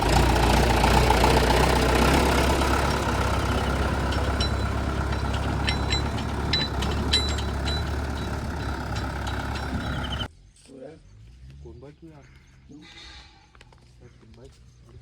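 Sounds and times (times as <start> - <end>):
diesel engine idling: 0.0 - 10.3
sharp metallic clicks: 0.0 - 10.3.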